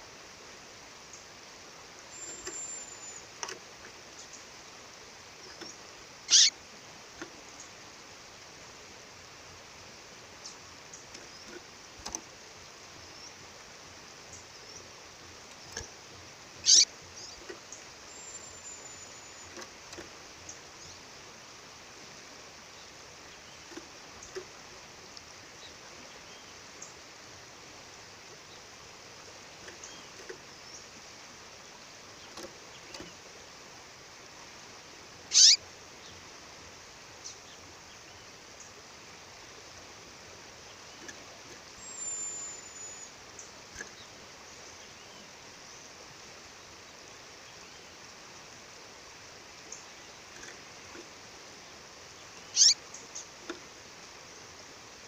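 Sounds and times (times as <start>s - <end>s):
faint high chirps: 2.1s - 3.5s, 5.4s - 6.6s, 16.6s - 17.5s, 18.1s - 21.0s, 35.3s - 35.6s, 40.9s - 44.0s, 52.4s - 53.3s
bird calls sweeping downward: 6.3s - 6.6s, 16.6s - 16.9s, 35.3s - 35.6s, 52.5s - 52.8s.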